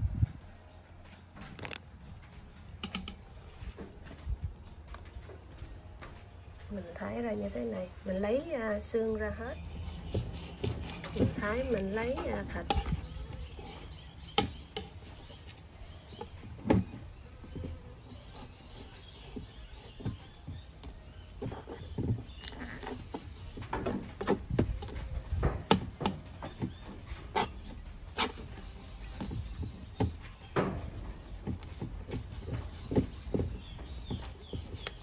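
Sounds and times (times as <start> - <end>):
knife slicing fish: 9.6 - 13.6.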